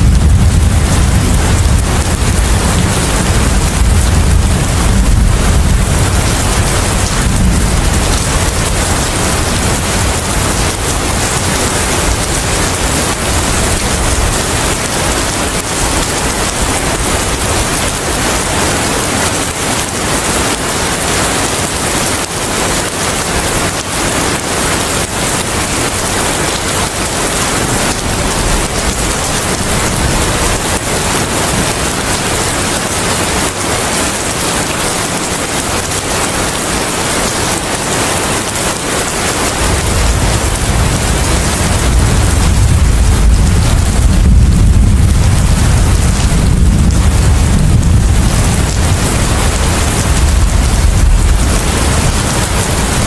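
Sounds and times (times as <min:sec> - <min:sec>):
low rumble: 0:00.0 - 0:14.4, 0:39.7 - 0:53.0
heavy rain: 0:00.0 - 0:53.0.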